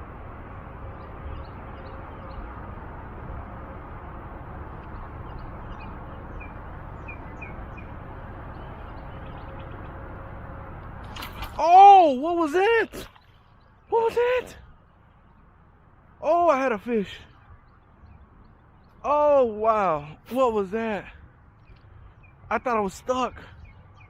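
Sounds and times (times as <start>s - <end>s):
low outdoor rumble: 0.0s - 24.0s
small birds chirping: 0.8s - 2.7s, 4.8s - 10.2s, 12.2s - 24.0s.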